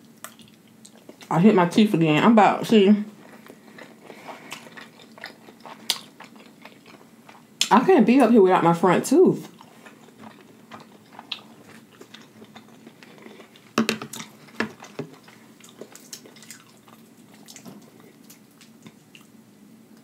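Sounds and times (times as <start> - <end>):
person chewing food: 0.0 - 1.3, 3.1 - 7.7, 9.5 - 19.4.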